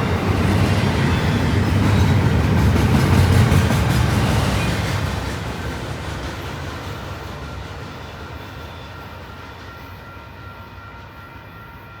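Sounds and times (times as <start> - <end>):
freight train wheels rumbling: 0.0 - 11.5.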